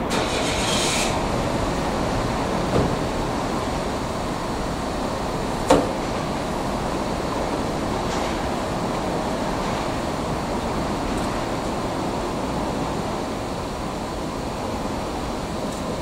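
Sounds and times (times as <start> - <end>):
electric train running on track: 0.0 - 16.0.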